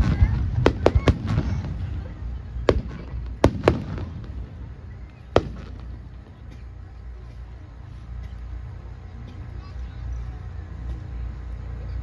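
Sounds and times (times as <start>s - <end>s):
fireworks bangs: 0.0s - 6.8s
low rumble: 0.0s - 12.0s.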